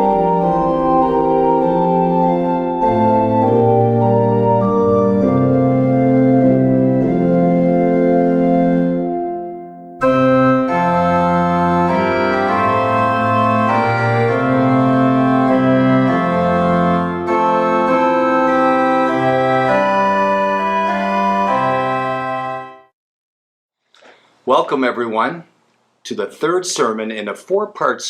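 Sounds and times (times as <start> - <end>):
organ playing sustained chords: 0.0 - 22.8.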